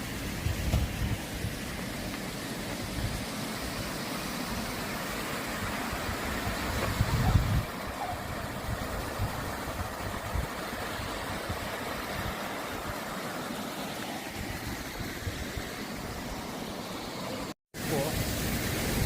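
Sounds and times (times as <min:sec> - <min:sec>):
even hiss: 0:12.0 - 0:19.0.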